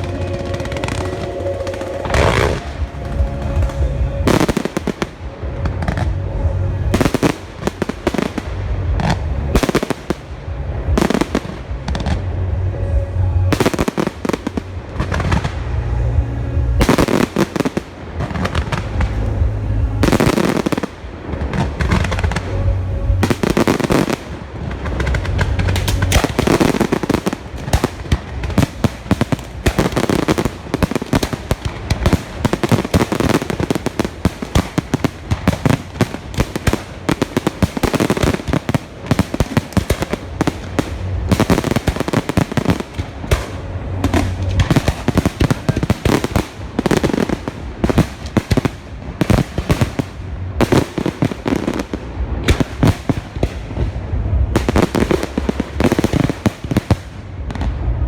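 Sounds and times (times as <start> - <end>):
fireworks bursts and crackling: 0.0 - 58.0
deep firework booms: 16.8 - 58.0.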